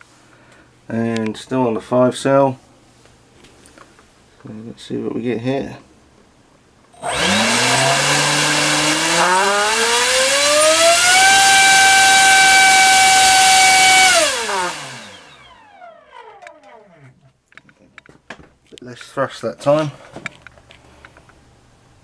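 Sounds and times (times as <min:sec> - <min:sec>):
brushless motor whine: 0:07.0 - 0:17.0.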